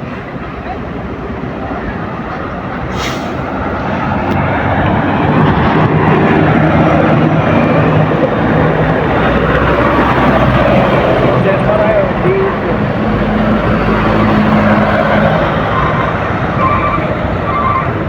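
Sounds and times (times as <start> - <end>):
large vehicle engines in traffic: 0.0 - 18.0
short hiss: 2.9 - 3.4.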